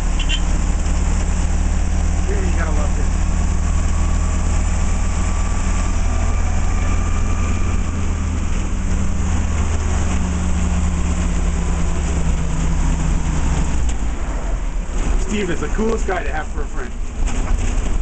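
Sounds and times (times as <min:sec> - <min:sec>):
vehicle engine droning: 0:00.0 - 0:18.0.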